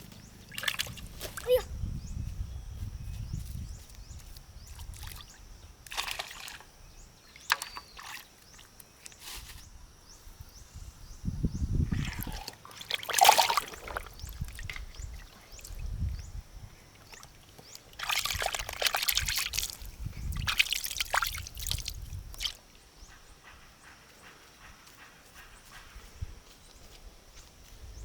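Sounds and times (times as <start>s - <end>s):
water splashing and sloshing: 0.5s - 1.6s, 4.9s - 6.7s, 7.3s - 8.7s, 11.9s - 16.0s, 16.9s - 22.6s.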